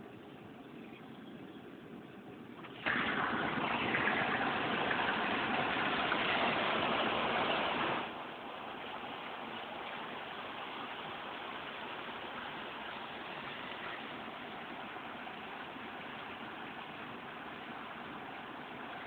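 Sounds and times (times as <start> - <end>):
truck driving through floodwater: 0.0 - 19.0.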